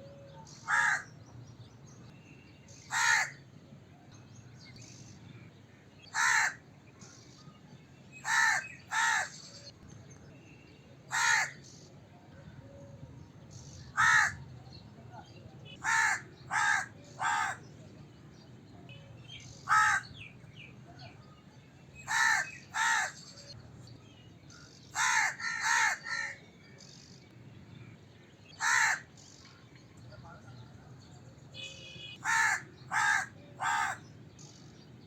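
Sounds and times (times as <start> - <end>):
crow cawing: 0.6 - 1.1, 2.9 - 3.4, 6.1 - 6.6, 8.2 - 9.4, 11.1 - 11.6, 14.0 - 14.4, 15.8 - 17.6, 19.7 - 20.1, 22.1 - 23.2, 25.0 - 26.4, 28.6 - 29.1, 32.2 - 34.1.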